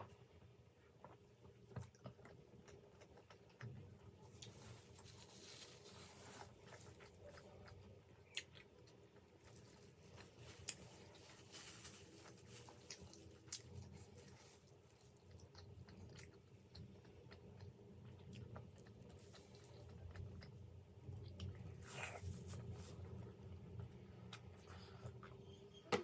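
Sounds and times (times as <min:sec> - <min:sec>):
person chewing food: 0:01.0 - 0:05.1, 0:06.4 - 0:11.2, 0:12.2 - 0:23.2.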